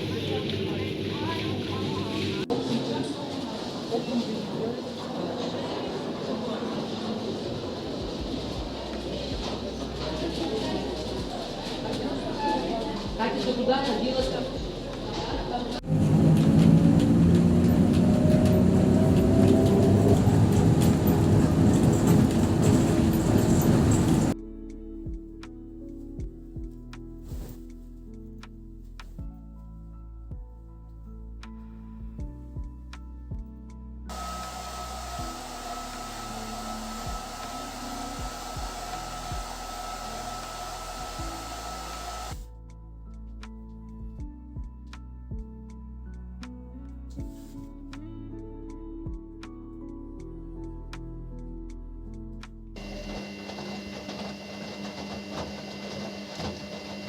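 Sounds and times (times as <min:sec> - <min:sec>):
soft background music: 0:06.8 - 0:53.2
vehicle interior rumble: 0:15.7 - 0:24.4
electric motor blowing air: 0:15.8 - 0:24.4, 0:34.1 - 0:42.4, 0:52.8 - 0:57.0.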